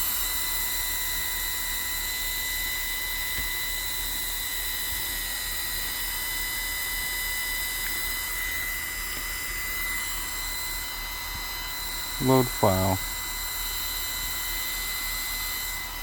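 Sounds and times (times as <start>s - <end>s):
high-pitched electric motor whine: 0.0s - 16.0s.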